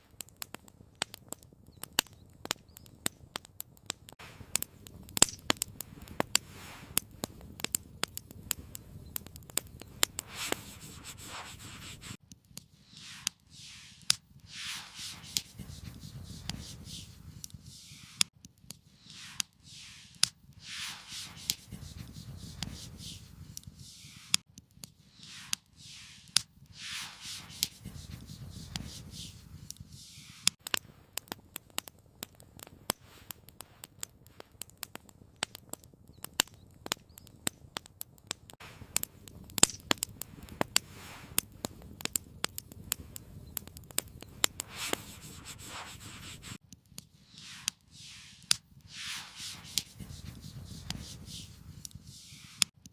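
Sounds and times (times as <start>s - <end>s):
campfire crackling and popping: 0.0s - 52.9s
rustling scraping sounds: 10.1s - 12.2s, 12.8s - 18.3s, 18.9s - 24.4s, 25.0s - 30.6s, 44.6s - 46.6s, 47.2s - 52.7s.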